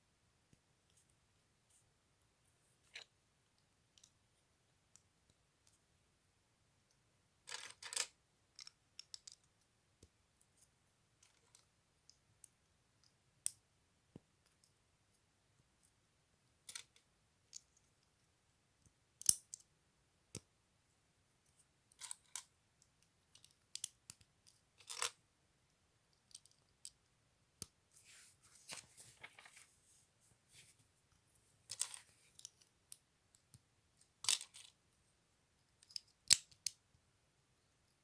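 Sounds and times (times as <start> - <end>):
pieces rustling: 31.7 - 32.1.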